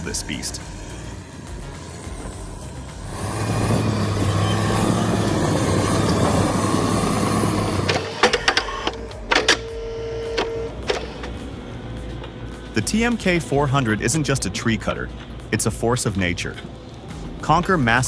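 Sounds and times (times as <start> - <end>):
higher-pitched hum: 0.0 - 17.9
heavy machine engine running: 1.6 - 15.6.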